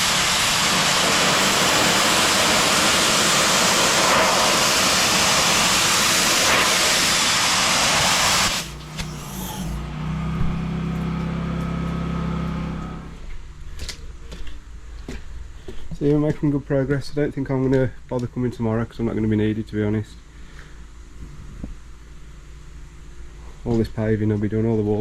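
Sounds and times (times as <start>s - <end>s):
pressure washer spraying hiss: 0.0s - 9.9s
engine low hum: 0.0s - 16.6s.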